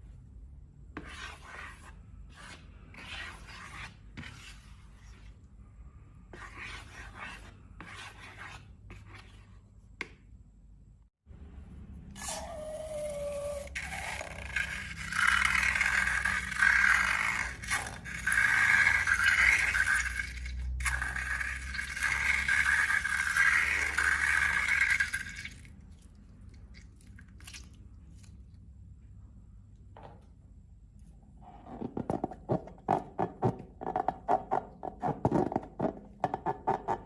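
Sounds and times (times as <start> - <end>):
slime scraping and rubbing: 1.0 - 5.4, 13.4 - 25.0.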